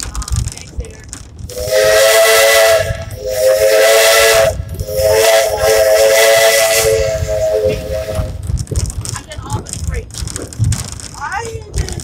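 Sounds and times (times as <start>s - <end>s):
steam hiss: 1.5s - 8.3s
steam whistle blasts: 1.5s - 8.4s.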